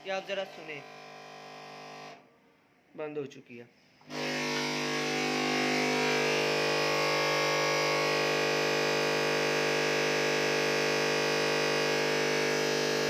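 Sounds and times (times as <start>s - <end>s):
electrical buzz: 4.1s - 13.0s.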